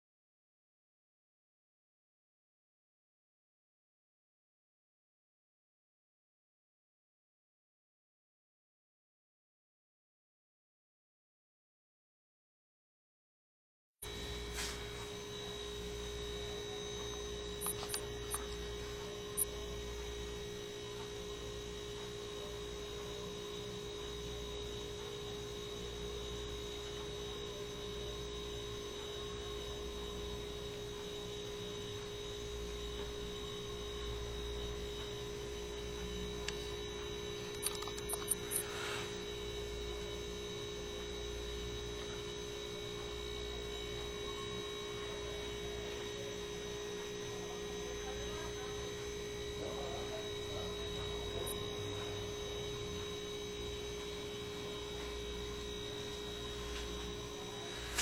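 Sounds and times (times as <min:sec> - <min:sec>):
steady high tones: 0:14.0 - 0:28.2, 0:28.9 - 0:40.4, 0:47.3 - 0:58.0
electrical hum: 0:14.0 - 0:58.0
faint clicks: 0:37.5 - 0:38.7.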